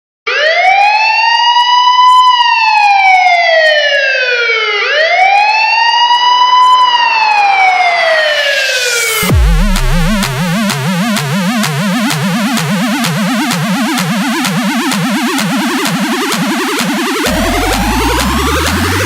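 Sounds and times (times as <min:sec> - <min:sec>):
siren-like synth wail: 0:00.3 - 0:19.0.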